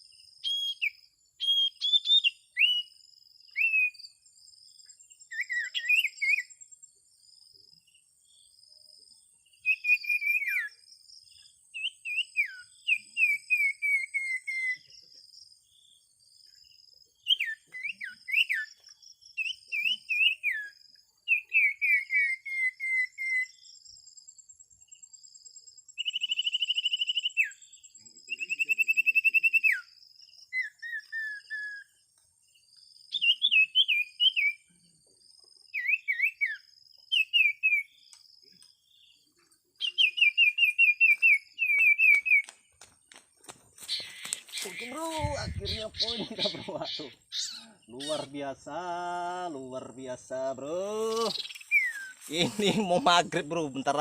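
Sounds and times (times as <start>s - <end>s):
songbirds whistling calls: 0.0s - 6.8s, 9.5s - 15.1s, 16.5s - 24.0s, 25.8s - 32.2s, 33.0s - 34.8s, 35.6s - 49.4s, 50.6s - 53.4s
insects buzzing: 31.9s - 54.0s
bird trills: 35.8s - 42.8s, 43.8s - 48.8s, 51.1s - 53.1s.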